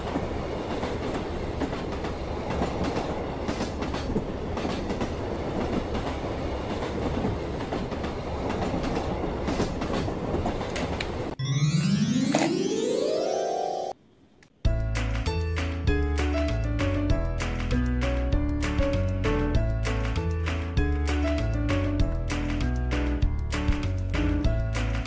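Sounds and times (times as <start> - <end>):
train rumbling on rails: 0.0 - 11.4.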